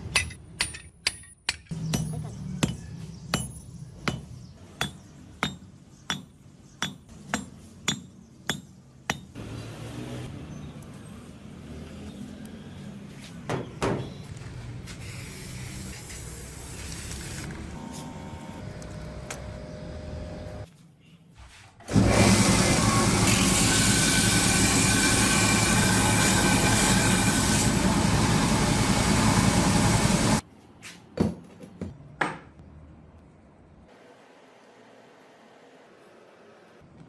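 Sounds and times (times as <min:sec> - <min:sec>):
loud machine noise: 0:21.9 - 0:30.4.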